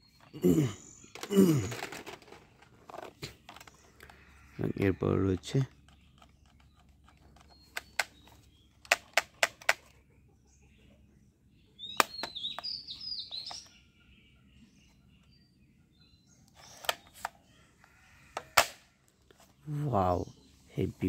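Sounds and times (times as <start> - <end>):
birds chirping: 0.0 - 21.0
toy gun plastic clicks: 8.8 - 9.9.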